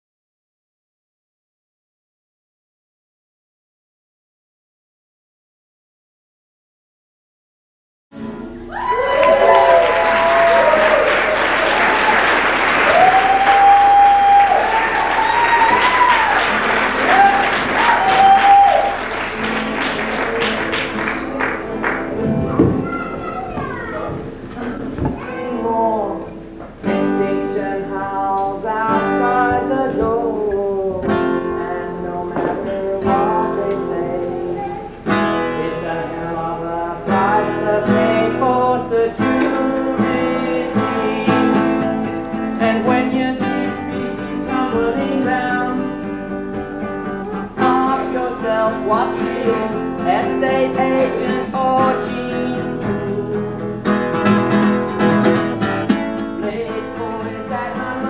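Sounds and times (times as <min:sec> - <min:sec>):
acoustic guitar strumming: 0:08.2 - 0:58.0.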